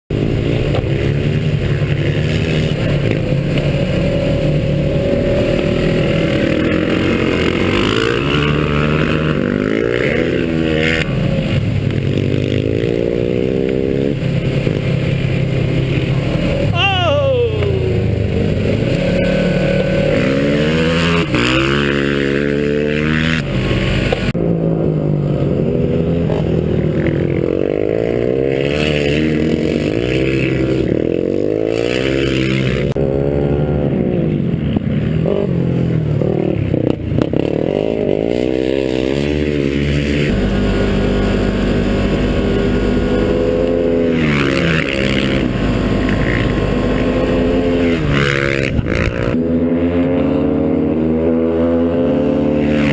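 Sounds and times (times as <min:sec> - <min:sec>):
motorcycle engine revving: 0:00.1 - 0:52.9.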